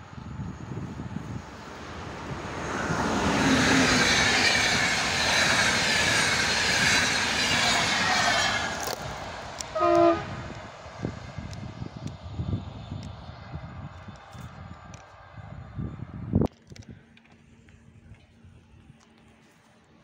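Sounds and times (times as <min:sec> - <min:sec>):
passenger train passing at speed: 0:00.0 - 0:16.5
train horn blast: 0:09.7 - 0:10.6.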